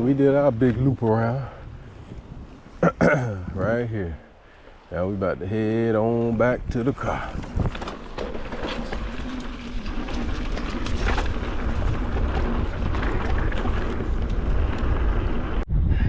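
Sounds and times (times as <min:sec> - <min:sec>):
wind rushing over microphone: 0:00.0 - 0:02.8, 0:05.0 - 0:16.0
bike tyres rumbling on dirt: 0:00.0 - 0:15.6
bike rattles and clicks: 0:05.5 - 0:15.6.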